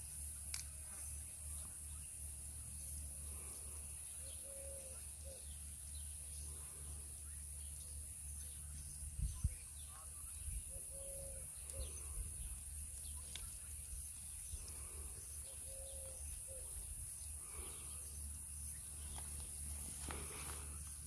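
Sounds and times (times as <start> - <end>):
faint bird chirps: 0.9 - 20.8
low three-note bird cooing: 4.2 - 5.5, 10.7 - 12.0, 15.4 - 16.7.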